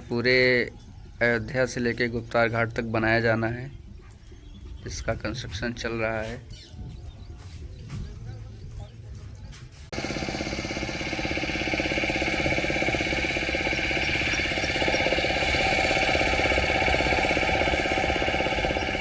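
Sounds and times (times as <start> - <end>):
engine chugging: 9.9 - 19.0.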